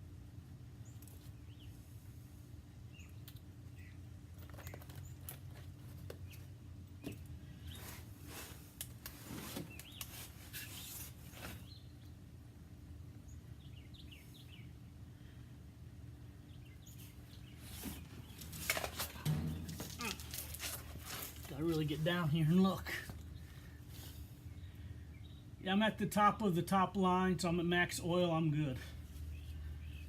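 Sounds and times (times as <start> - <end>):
handling clicks and rustles: 4.3 - 11.7, 17.4 - 22.0.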